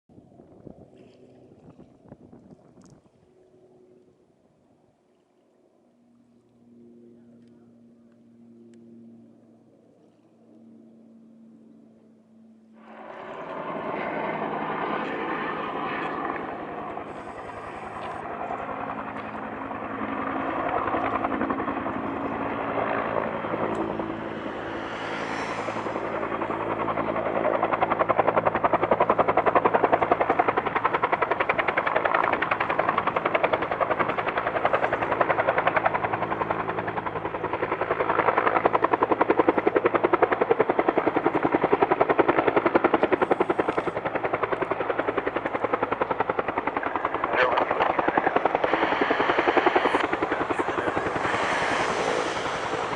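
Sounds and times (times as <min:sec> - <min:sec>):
helicopter rotor chopping: 0:12.8 - 0:52.9.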